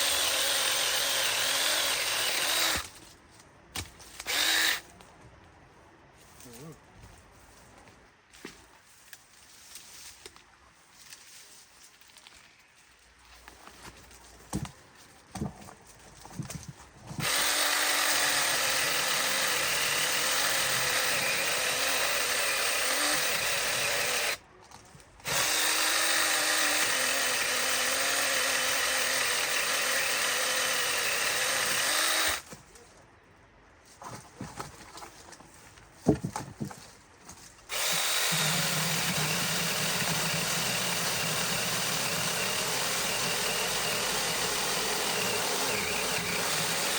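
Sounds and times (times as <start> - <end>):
chainsaw running under load: 0.0 - 2.9, 17.2 - 24.4, 25.2 - 32.4, 37.7 - 46.9.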